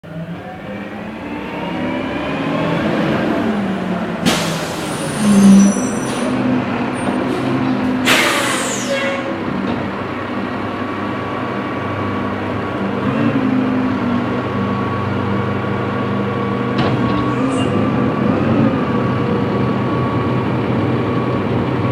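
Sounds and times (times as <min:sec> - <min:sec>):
diesel truck engine running: 0:00.0 - 0:21.9
air brake hisses: 0:04.2 - 0:06.3, 0:07.3 - 0:09.2.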